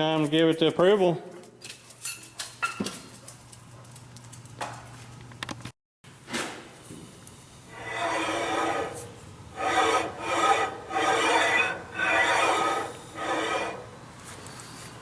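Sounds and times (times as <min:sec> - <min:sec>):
metal part scraping on plate: 0:07.7 - 0:14.0.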